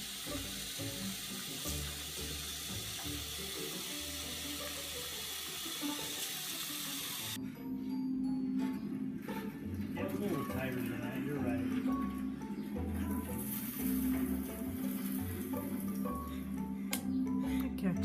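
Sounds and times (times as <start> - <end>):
steady rushing hiss: 0.0 - 7.4
quiet background music: 0.0 - 18.0.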